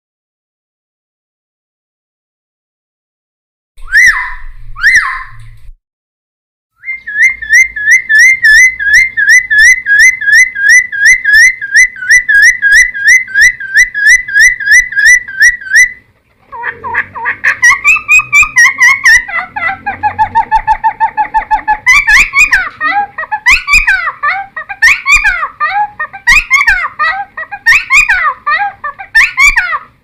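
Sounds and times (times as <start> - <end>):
bird singing whistled notes: 6.8 - 16.0.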